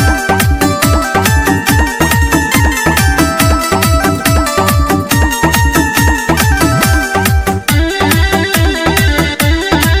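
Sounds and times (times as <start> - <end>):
synth melody: 1.7 - 8.1
deep kick drums: 6.5 - 7.4.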